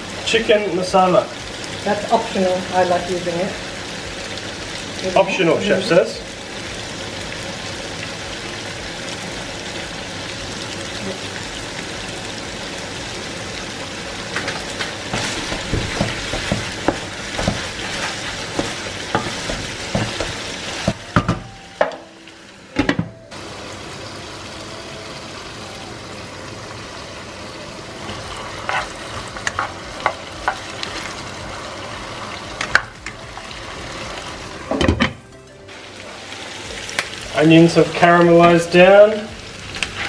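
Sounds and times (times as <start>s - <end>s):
food sizzling in a pan: 0.0s - 40.0s
spatula scraping a pan: 14.4s - 21.0s, 28.3s - 30.6s, 39.8s - 40.0s.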